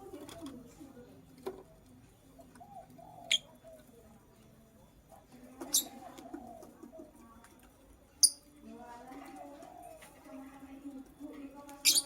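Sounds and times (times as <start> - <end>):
bird high chirps: 11.8 - 12.0.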